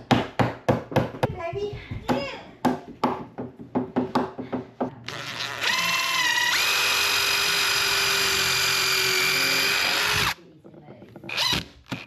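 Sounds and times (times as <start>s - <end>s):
power drill whining: 5.1s - 10.4s, 11.3s - 12.0s.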